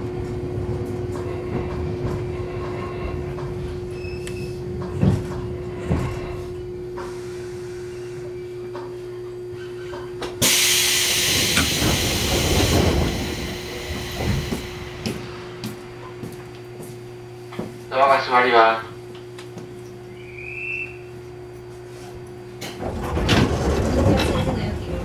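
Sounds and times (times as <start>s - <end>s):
electric train hum: 0.0s - 25.0s
compressed air hiss: 10.4s - 12.4s.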